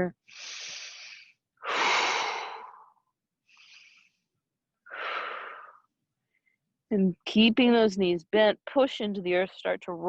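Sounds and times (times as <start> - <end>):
woman breathing deeply: 0.3 - 5.9.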